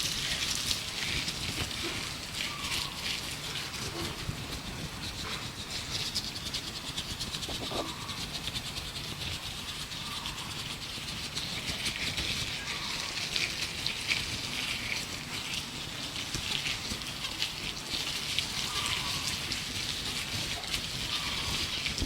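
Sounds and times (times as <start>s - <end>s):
gloved hands rubbing and crinkling: 0.0s - 22.0s
faint bird chirps: 2.4s - 3.1s, 9.9s - 10.6s, 12.5s - 13.2s, 18.7s - 19.3s, 21.1s - 21.7s.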